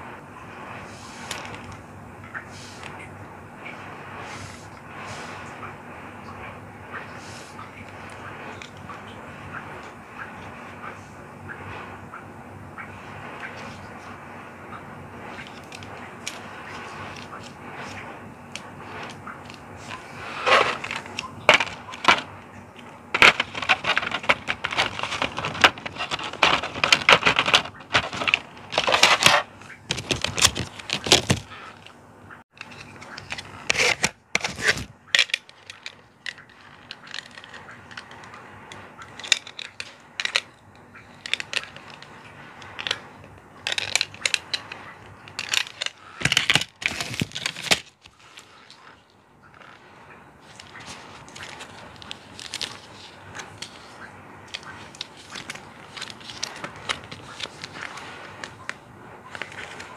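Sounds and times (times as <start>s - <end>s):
plastic packaging crackling: 15.2s - 59.9s
plastic figure parts clicking: 20.5s - 31.9s, 32.5s - 38.2s, 39.0s - 48.1s.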